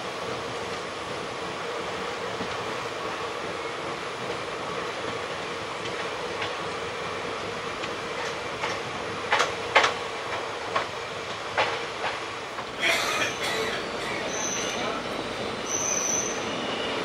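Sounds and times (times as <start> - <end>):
train rumbling on rails: 0.0 - 17.0
wheel clacks over rail joints: 7.8 - 15.0.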